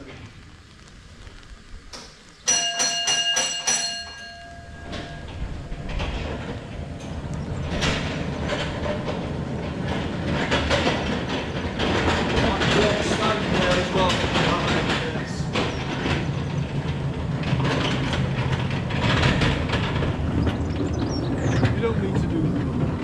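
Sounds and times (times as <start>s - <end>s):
train wheels clattering: 2.4s - 23.0s
bell ringing: 2.5s - 6.0s.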